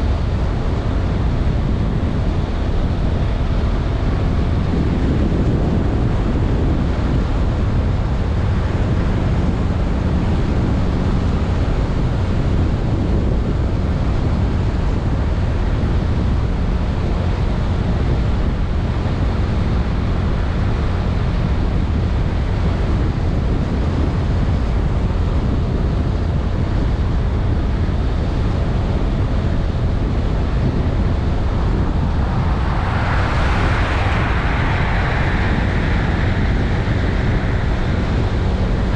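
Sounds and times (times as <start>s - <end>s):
wind buffeting microphone: 0.0s - 38.9s
low scooter engine drone: 26.4s - 38.9s
hissing sound: 31.2s - 38.9s.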